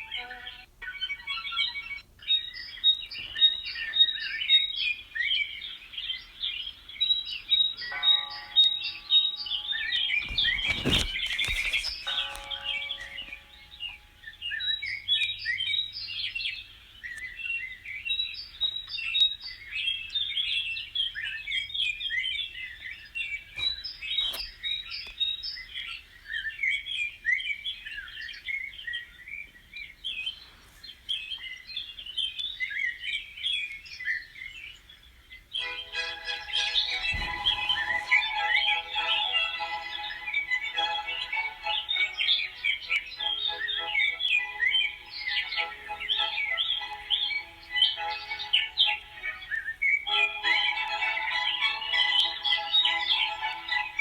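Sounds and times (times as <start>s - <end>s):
small birds chirping: 0.0s - 54.0s
loud rustling: 9.5s - 13.9s, 36.0s - 42.3s.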